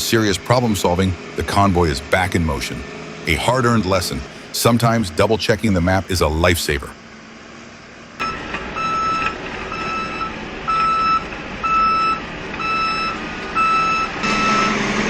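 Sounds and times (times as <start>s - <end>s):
steady vehicle rumble: 0.0s - 15.0s
reversing alarm beeping: 8.2s - 15.0s.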